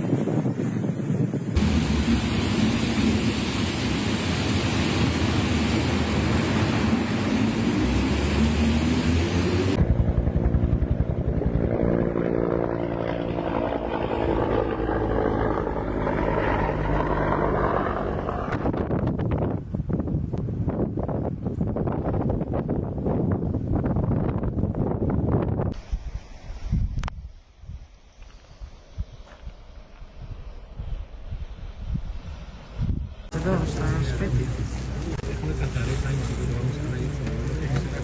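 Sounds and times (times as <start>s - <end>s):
dense rushing noise: 0.0s - 11.7s, 29.8s - 38.0s
propeller aircraft engine drone: 0.0s - 18.9s, 33.3s - 38.0s.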